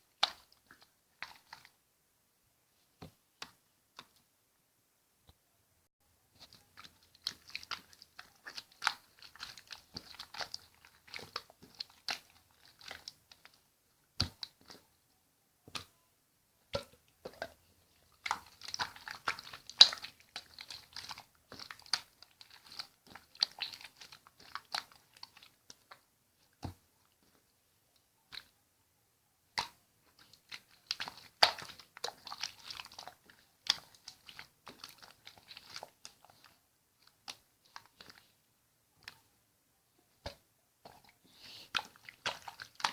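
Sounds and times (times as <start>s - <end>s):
slime squished by hand: 6.4s - 13.6s, 16.7s - 26.0s, 29.5s - 38.3s.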